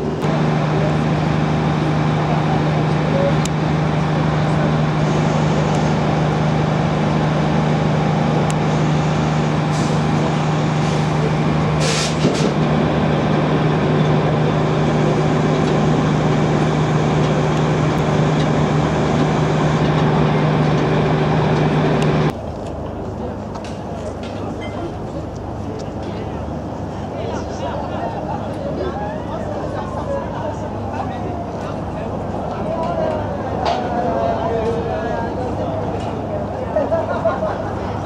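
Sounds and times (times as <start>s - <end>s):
boat engine low drone: 0.0s - 38.0s
short high hiss: 11.8s - 12.5s.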